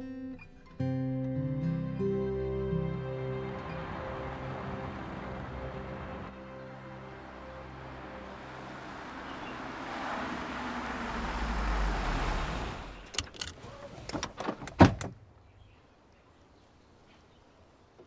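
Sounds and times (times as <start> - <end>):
car door clicks and knocks: 14.1 - 15.2.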